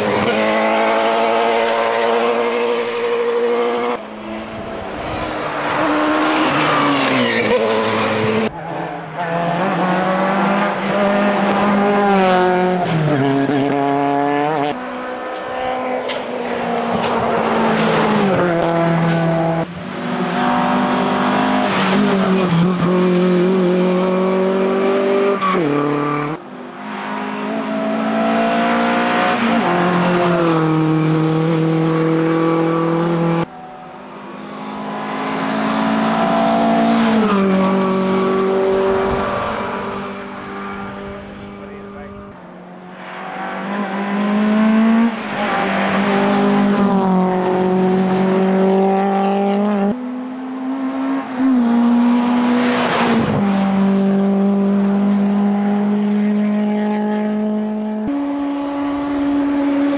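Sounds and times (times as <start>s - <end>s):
car engine revving hard: 34.8s - 59.9s.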